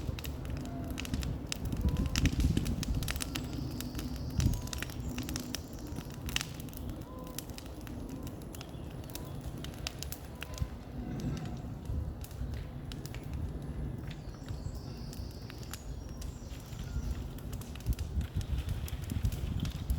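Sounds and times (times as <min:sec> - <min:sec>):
bonfire crackling and popping: 0:00.0 - 0:19.9
low rumble of flames: 0:00.0 - 0:19.9.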